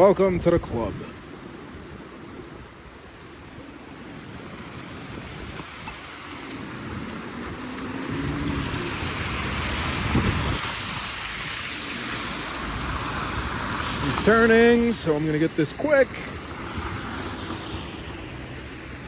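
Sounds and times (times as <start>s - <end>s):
wind rushing over microphone: 0.0s - 19.0s
vehicle approaching on snow: 4.5s - 19.0s.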